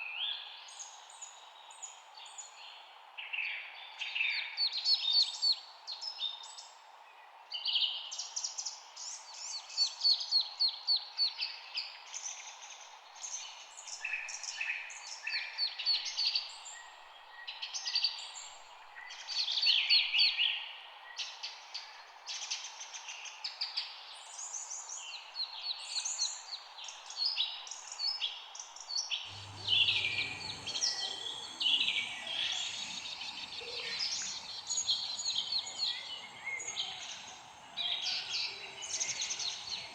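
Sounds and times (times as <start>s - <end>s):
low rumble: 29.3s - 39.9s
songbirds chirping trills: 29.3s - 39.9s
steady hiss: 29.3s - 39.9s.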